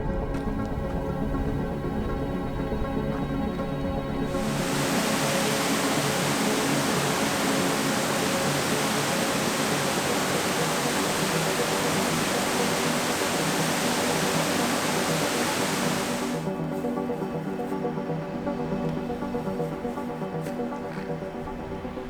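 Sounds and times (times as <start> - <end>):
quiet background music: 0.0 - 22.0
rushing water: 4.3 - 16.5.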